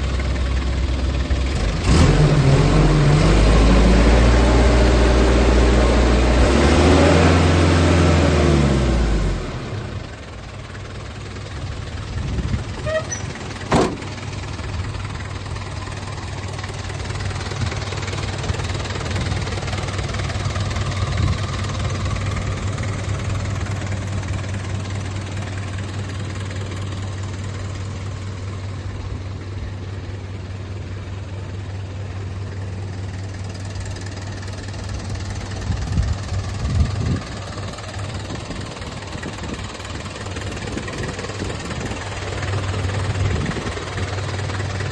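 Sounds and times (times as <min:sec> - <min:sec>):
diesel engine idling: 0:00.0 - 0:44.9
louder thumps: 0:13.6 - 0:14.2.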